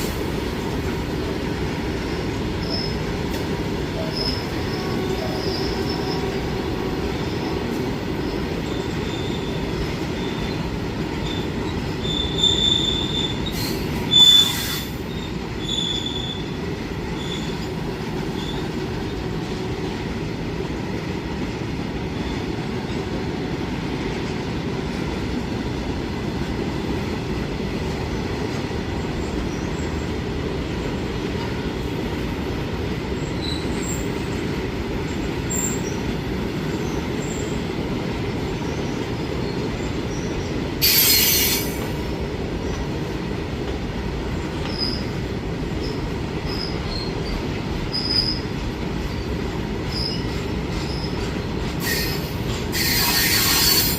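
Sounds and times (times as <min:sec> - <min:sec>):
train rumbling on rails: 0:00.0 - 0:53.9
high-pitched wheel squeals: 0:11.2 - 0:16.5, 0:40.8 - 0:41.8, 0:51.8 - 0:53.9.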